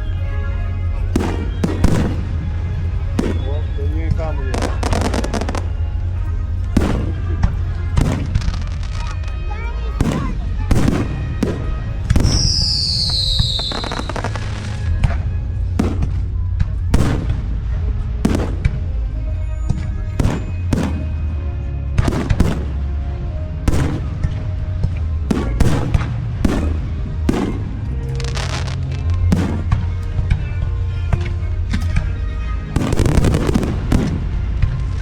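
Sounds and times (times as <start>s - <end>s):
fireworks bangs: 0.0s - 30.6s, 31.2s - 35.0s
firework whistle gliding downward: 12.1s - 15.0s.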